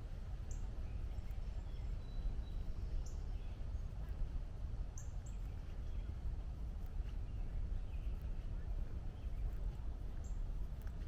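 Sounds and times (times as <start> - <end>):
low outdoor rumble: 0.0 - 11.0
faint bird chirps: 0.5 - 4.2, 4.9 - 6.3, 6.9 - 10.5.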